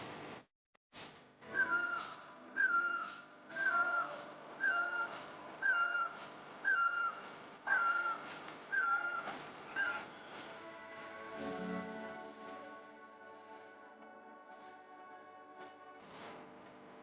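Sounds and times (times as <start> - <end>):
bird whistled call: 1.5 - 10.3.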